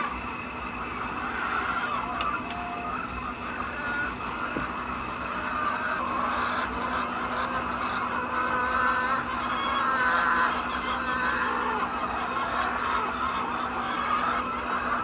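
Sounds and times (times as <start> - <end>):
hens clucking: 0.0 - 15.0
steady mechanical hum: 0.0 - 15.0.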